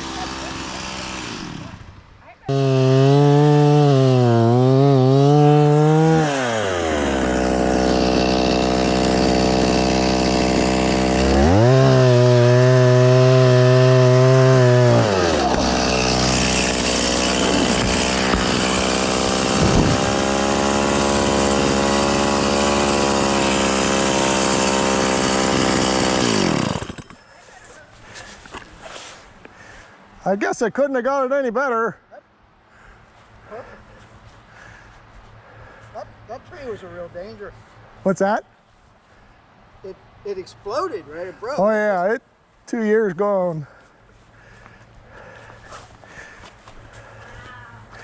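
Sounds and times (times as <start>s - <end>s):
chainsaw engine revving and idling: 0.0s - 1.8s, 2.5s - 27.2s.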